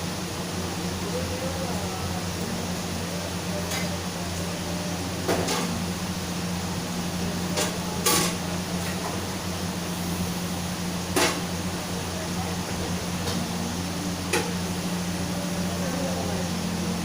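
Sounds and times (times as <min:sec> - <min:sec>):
steady low hum: 0:00.0 - 0:17.0
kitchen utensils and dishes clattering: 0:07.5 - 0:08.4.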